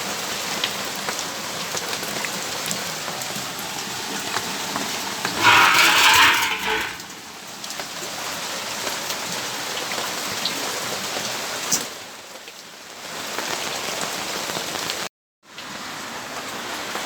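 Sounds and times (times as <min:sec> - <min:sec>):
steady rain falling: 0:09.6 - 0:17.0.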